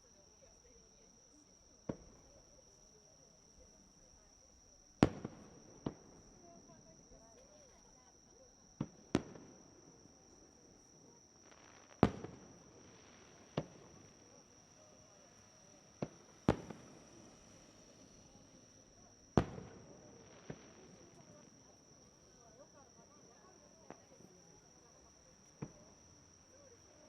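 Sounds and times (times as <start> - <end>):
insect trill: 0.0 - 27.0
fireworks bangs: 5.0 - 6.8, 8.8 - 9.6, 11.4 - 21.6.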